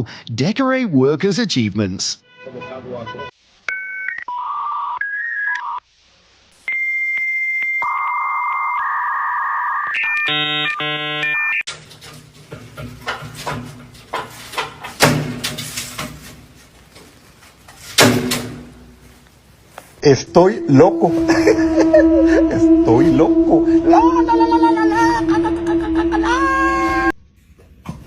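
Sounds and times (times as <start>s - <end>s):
multi-pitch electronic tone: 20.0s - 27.2s.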